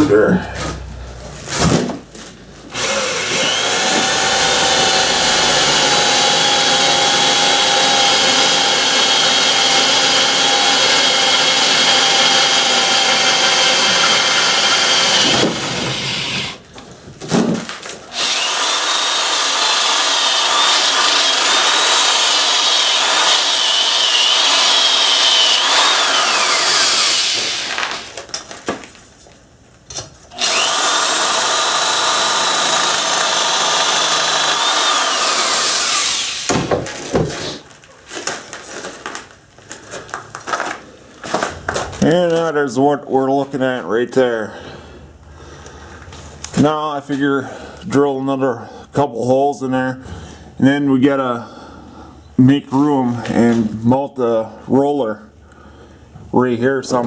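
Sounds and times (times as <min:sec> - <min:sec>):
electric drill boring metal: 0:02.7 - 0:16.6, 0:18.1 - 0:28.2, 0:30.3 - 0:36.8.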